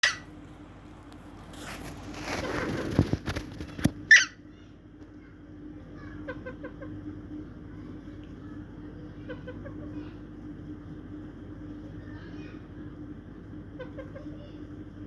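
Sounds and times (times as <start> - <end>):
parrot squawking: 0.0 - 0.3, 4.1 - 4.4
rustling and scuffling: 0.4 - 4.1.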